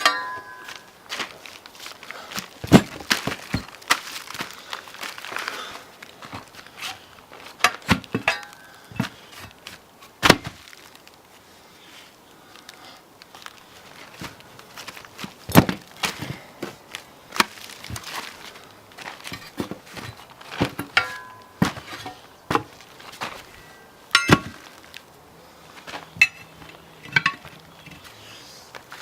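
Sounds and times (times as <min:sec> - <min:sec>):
knocks and thuds: 0:02.6 - 0:03.8.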